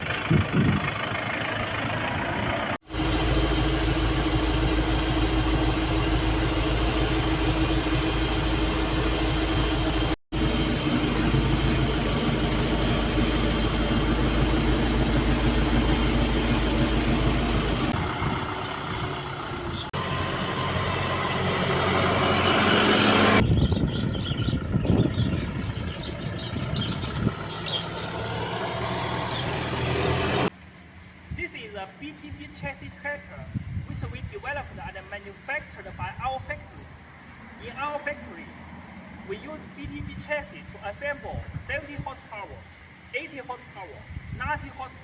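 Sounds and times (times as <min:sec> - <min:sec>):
tractor diesel engine running: 0:00.0 - 0:33.8.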